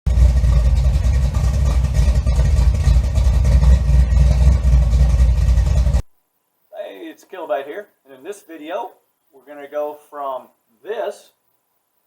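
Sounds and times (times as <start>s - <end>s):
car engine rumbling: 0.1s - 6.1s.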